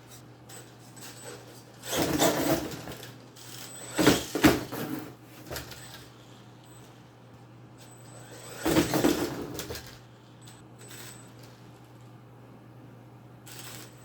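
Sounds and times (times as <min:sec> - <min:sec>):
toy truck electric motor whirring: 0:00.5 - 0:04.7, 0:07.8 - 0:10.0, 0:13.5 - 0:14.0.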